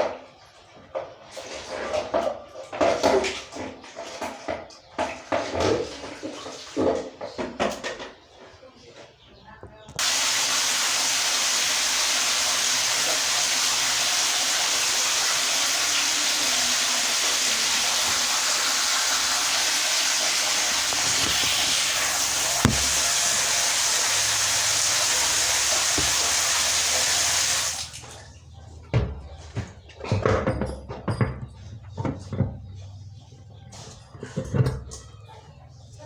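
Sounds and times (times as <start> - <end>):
water spraying: 10.0 - 28.1
knock: 22.6 - 23.1, 25.9 - 26.3.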